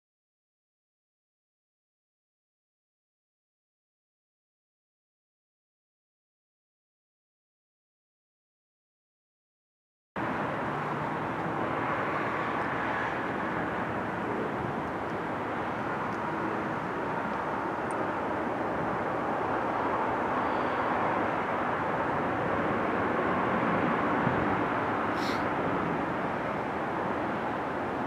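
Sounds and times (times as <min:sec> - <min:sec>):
distant freight train rumble: 0:10.2 - 0:28.0.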